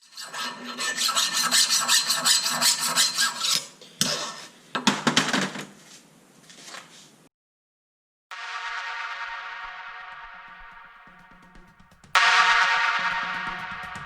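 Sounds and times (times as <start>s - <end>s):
rasping hand-filing strokes: 0.0s - 4.4s
sharp knock: 8.6s - 14.0s.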